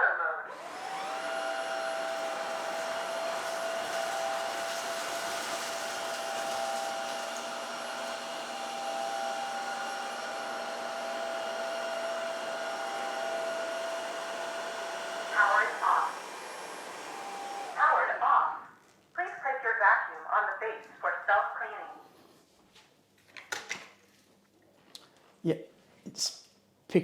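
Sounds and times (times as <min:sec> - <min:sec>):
floor cleaner suction hiss: 0:00.5 - 0:17.8.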